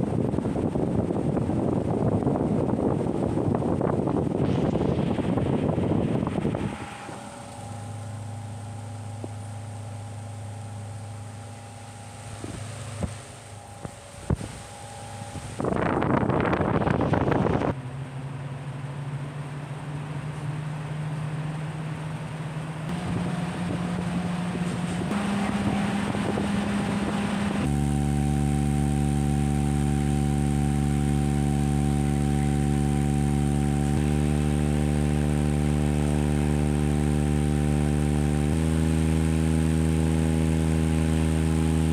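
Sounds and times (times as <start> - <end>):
loud rush of air: 0.0 - 17.8, 22.9 - 36.8
electric fan hum: 0.0 - 41.9.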